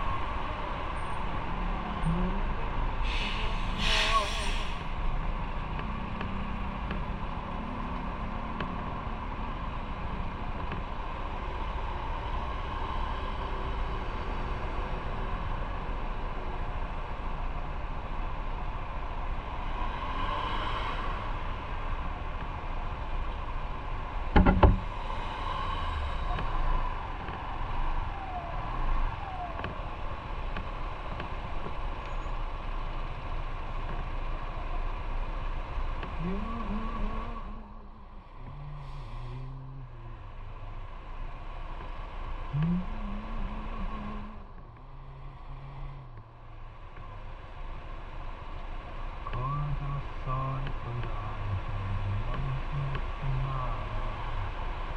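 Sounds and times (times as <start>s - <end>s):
motorcycle engine and road rumble: 0.0s - 54.9s
sharp knock: 24.4s - 24.8s.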